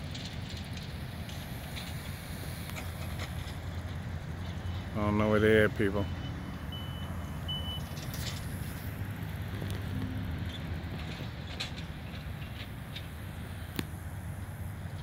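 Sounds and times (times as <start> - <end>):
distant vehicle engines rumbling: 0.0 - 15.0
reversing beep: 4.6 - 8.1.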